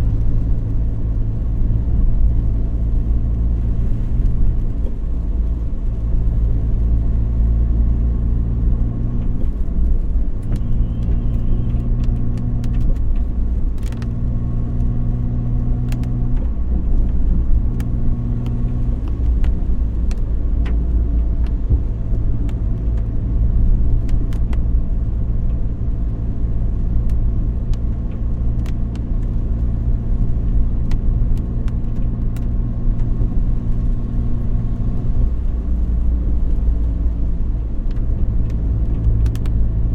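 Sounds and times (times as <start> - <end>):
car engine and road rumble: 0.0 - 39.9
light ticks: 26.9 - 39.8.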